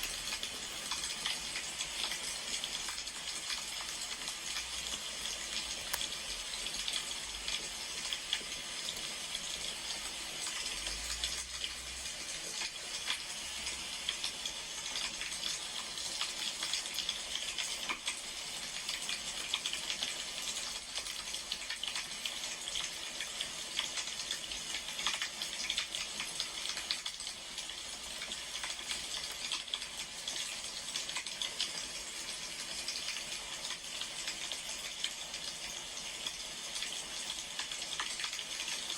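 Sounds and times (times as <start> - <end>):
fire crackles and pops: 0.0 - 8.6
wood fire hissing: 0.0 - 38.9.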